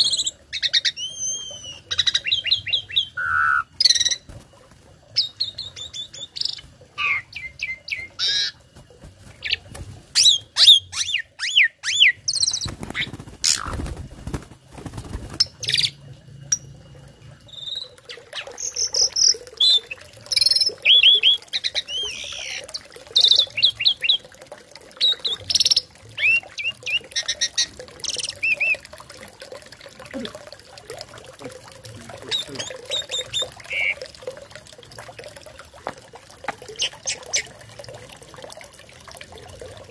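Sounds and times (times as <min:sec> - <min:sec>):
starling singing: 0:32.2 - 0:34.0.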